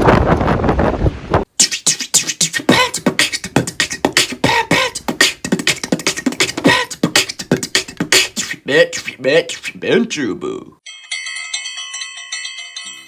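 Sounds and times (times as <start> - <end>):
person beatboxing: 1.5 - 9.8.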